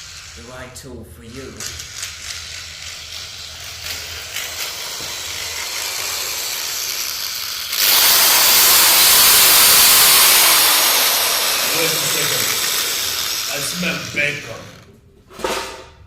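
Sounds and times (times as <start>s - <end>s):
loud full hiss: 6.0s - 14.6s.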